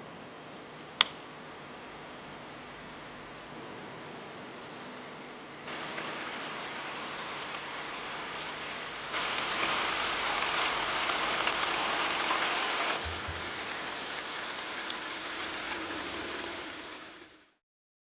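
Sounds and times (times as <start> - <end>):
steady rain falling: 5.7 - 17.6.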